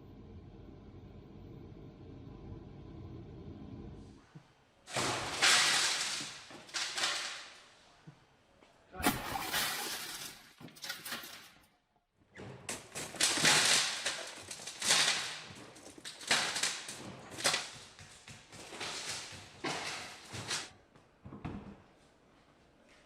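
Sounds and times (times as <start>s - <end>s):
tools and parts clattering: 9.2s - 11.7s, 12.7s - 20.7s.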